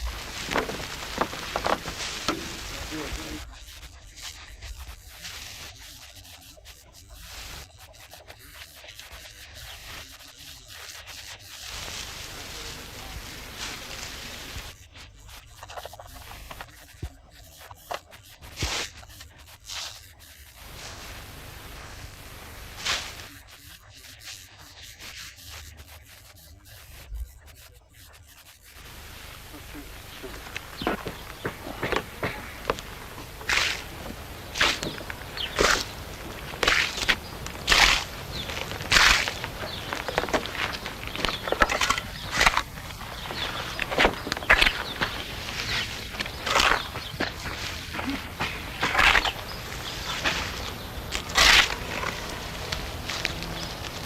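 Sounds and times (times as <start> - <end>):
hand tool rubbing render on wall: 0.0 - 54.0
short loud hiss: 20.6 - 23.4
plastering tool scraping wall: 28.8 - 54.0.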